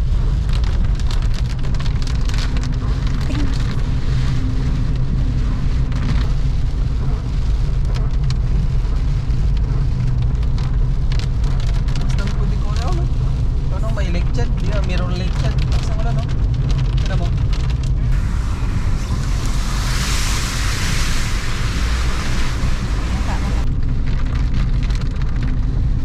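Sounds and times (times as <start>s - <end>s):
car engine and tyres rumbling: 0.0s - 26.0s
small ticks and patters: 5.7s - 18.0s.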